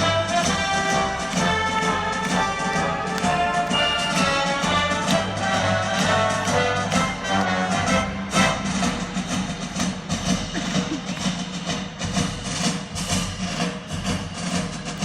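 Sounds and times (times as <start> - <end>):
brass playing sustained chords: 0.0 - 9.2.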